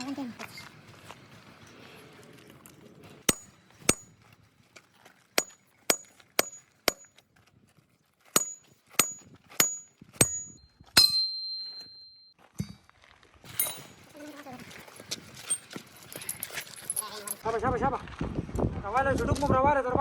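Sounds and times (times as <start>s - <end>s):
hammer striking steel: 3.3s - 4.1s, 5.4s - 7.1s, 8.4s - 12.8s
high metallic ring: 8.4s - 12.7s, 13.5s - 14.2s.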